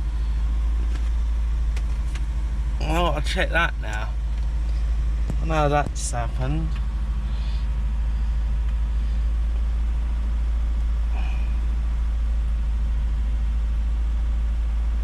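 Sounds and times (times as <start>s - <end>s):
misfiring car engine rumble: 0.0s - 15.0s.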